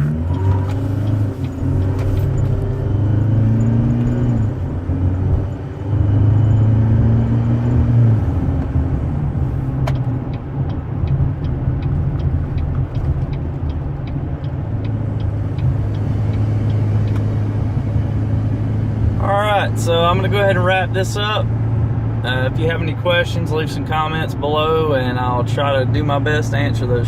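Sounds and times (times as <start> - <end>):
engine drone inside car: 0.0 - 27.0
light regular ticking: 0.1 - 4.4, 9.7 - 17.4.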